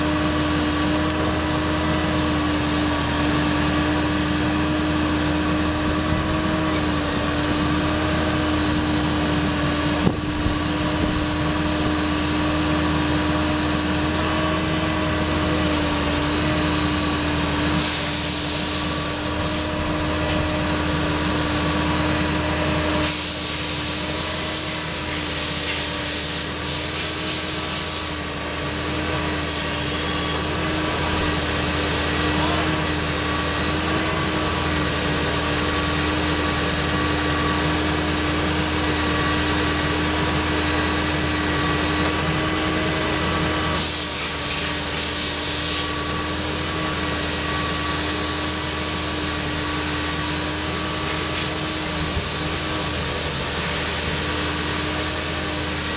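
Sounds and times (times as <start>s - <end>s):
diesel engine running with whine: 0.0s - 55.9s
loud hiss: 17.8s - 19.8s, 23.0s - 28.2s, 43.7s - 55.9s.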